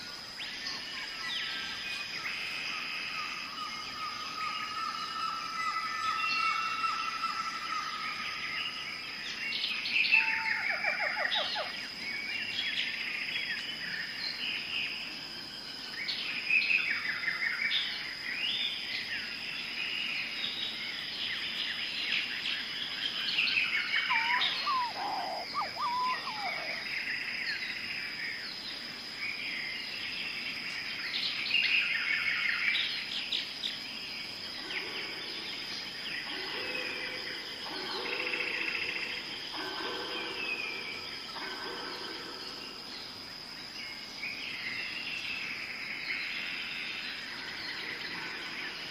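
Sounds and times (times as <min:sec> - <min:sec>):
high insect drone: 0:00.0 - 0:48.9
birds chattering: 0:23.5 - 0:27.8.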